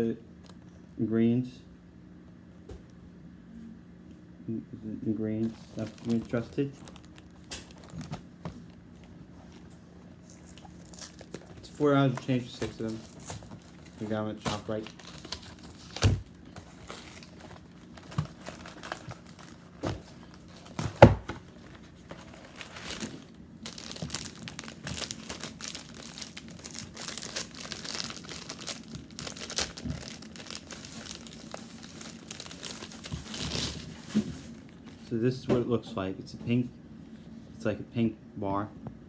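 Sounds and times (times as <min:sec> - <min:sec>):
plastic wrapper crinkling: 0:05.4 - 0:08.2, 0:10.3 - 0:20.9, 0:22.1 - 0:35.0.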